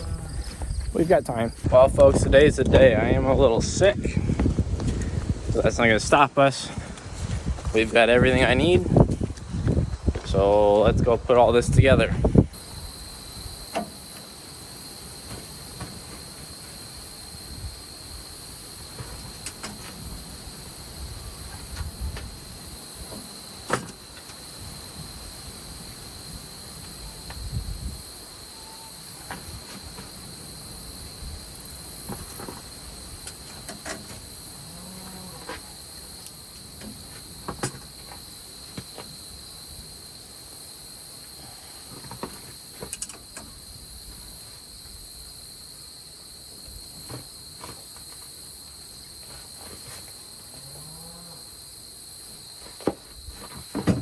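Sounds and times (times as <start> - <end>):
insects chirring: 0.0 - 54.0
sharp knocks and clanks: 23.1 - 24.4, 36.8 - 39.1, 52.8 - 54.0.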